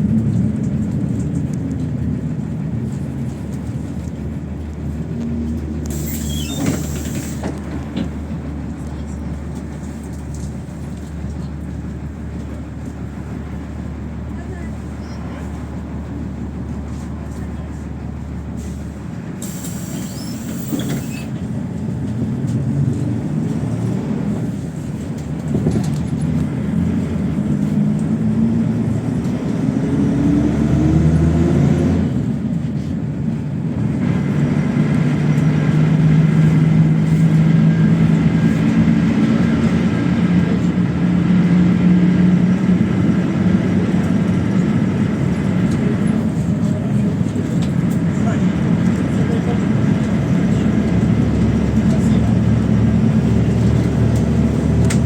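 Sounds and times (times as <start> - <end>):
bus engine pulling away: 0.0 - 55.0
air hiss: 5.9 - 7.4, 19.4 - 21.3.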